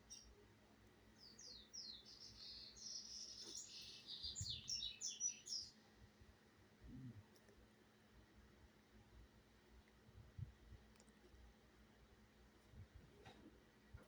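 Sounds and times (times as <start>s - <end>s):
small bird chirping: 0.0s - 0.4s, 1.2s - 5.8s.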